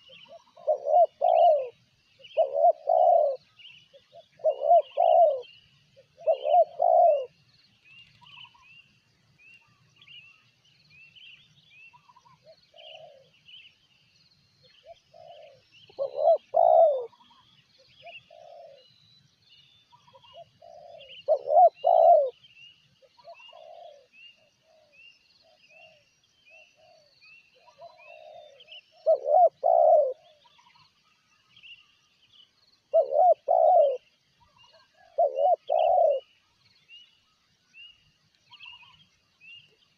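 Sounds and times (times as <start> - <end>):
doves cooing: 0.0 - 7.4, 12.0 - 13.4, 14.8 - 17.4, 18.0 - 18.9, 20.0 - 22.4, 23.1 - 26.1, 26.8 - 30.8, 32.9 - 36.4
small birds chirping: 0.0 - 39.9.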